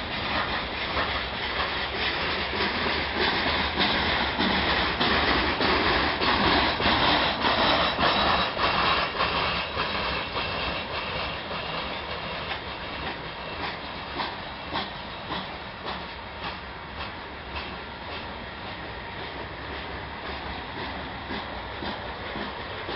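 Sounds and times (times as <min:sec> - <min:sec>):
freight train rumble: 0:00.0 - 0:22.9
train wheels clacking over rail joints: 0:00.0 - 0:22.9.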